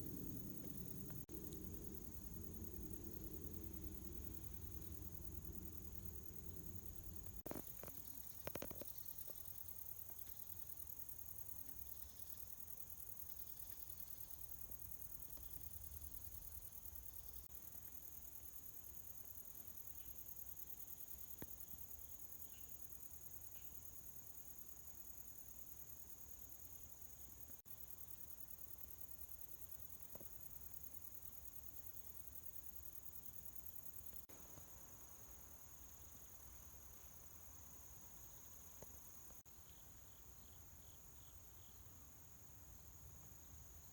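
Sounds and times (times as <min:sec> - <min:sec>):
insects chirring: 0:00.0 - 0:43.9.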